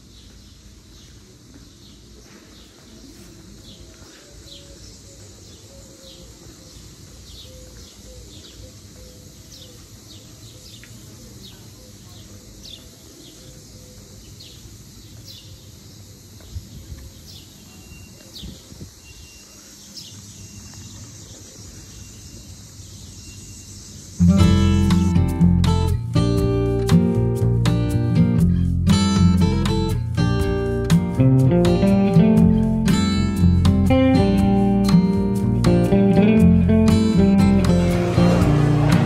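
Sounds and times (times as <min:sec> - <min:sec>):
small birds chirping: 0:00.0 - 0:25.1
low outdoor rumble: 0:35.5 - 0:39.0.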